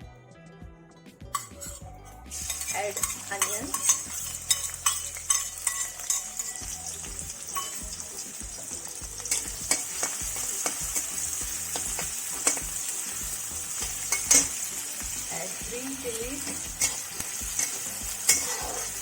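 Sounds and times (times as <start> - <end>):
onions sizzling in hot oil: 1.4 - 19.0
spatula clicking against pan: 2.4 - 6.7, 9.3 - 12.8, 16.5 - 18.6.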